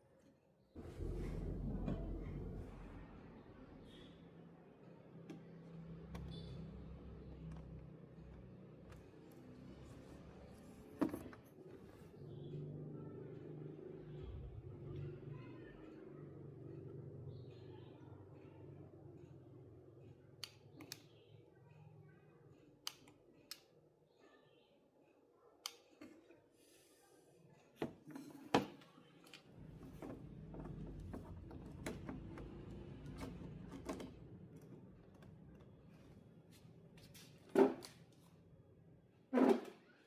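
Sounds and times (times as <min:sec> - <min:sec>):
low hum: 0:00.8 - 0:03.4.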